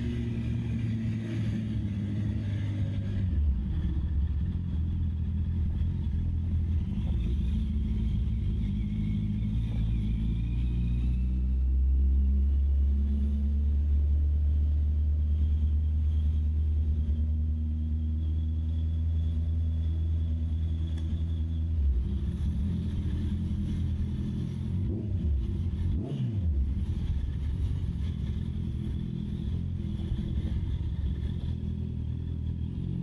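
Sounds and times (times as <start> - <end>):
motorcycle engine running: 12.6 - 33.0.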